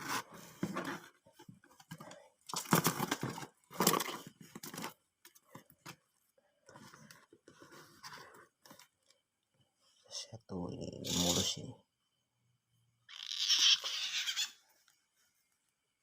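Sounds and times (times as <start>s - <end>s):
box rustling and crinkling: 0.0s - 6.1s.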